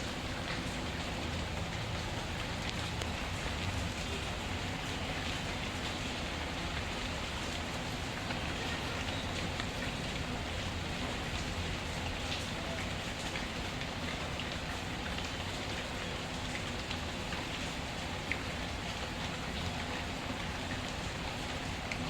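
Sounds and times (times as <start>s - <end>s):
rain hissing: 0.0s - 22.0s.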